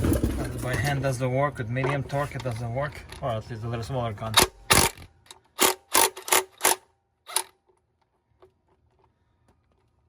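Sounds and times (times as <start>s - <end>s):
impact wrench bursts: 4.4s - 5.0s, 5.6s - 7.5s.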